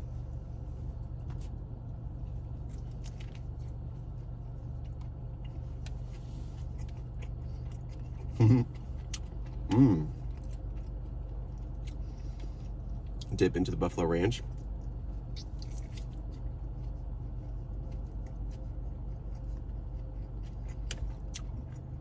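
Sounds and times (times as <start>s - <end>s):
low car interior hum: 0.0s - 22.0s
person chewing biscuit: 1.3s - 13.4s, 14.4s - 22.0s
person humming mm: 8.4s - 8.7s, 9.7s - 10.2s.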